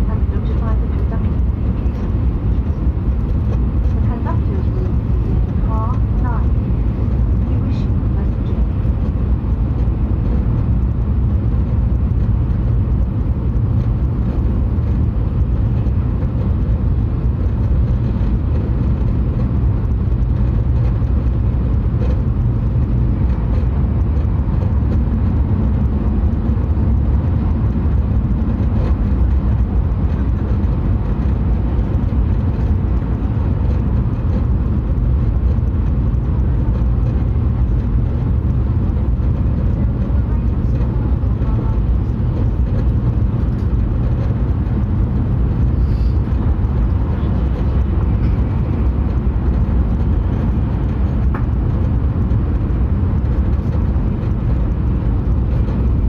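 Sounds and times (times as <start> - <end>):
train running rumble: 0.0 - 56.0.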